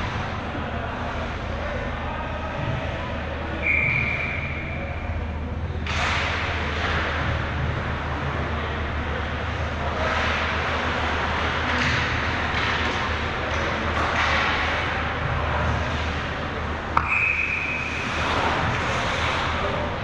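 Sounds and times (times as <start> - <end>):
broad rush of noise: 0.0 - 20.0
referee whistle blast: 3.6 - 4.8, 17.0 - 17.8.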